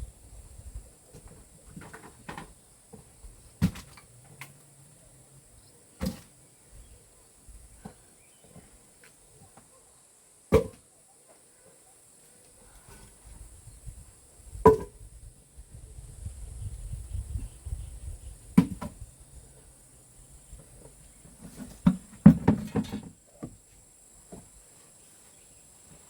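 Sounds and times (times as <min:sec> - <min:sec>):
insects hissing: 0:11.9 - 0:26.0
firewood knocking and clunking: 0:21.4 - 0:23.6.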